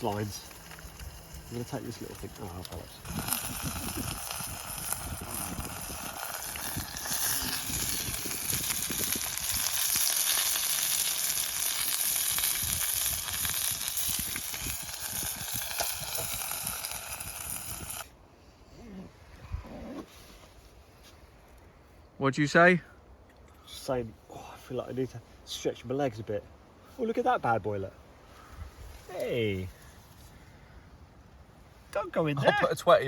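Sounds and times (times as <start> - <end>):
food sizzling in a pan: 0.0 - 18.1
wind buffeting microphone: 1.0 - 10.0, 12.3 - 18.0.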